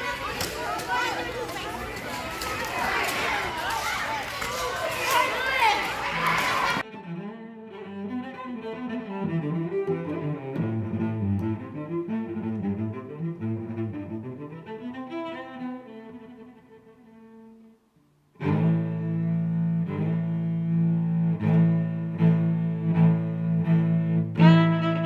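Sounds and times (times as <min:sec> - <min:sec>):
bowed strings music: 0:06.8 - 0:17.7, 0:18.4 - 0:25.0.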